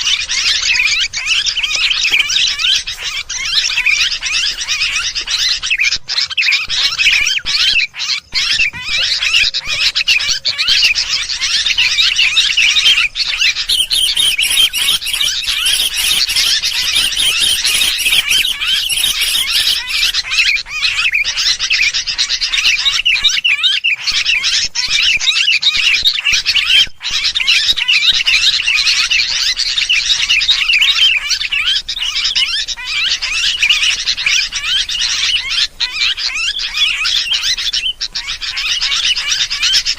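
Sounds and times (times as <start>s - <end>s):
bulbuls chattering: 0.0s - 23.2s.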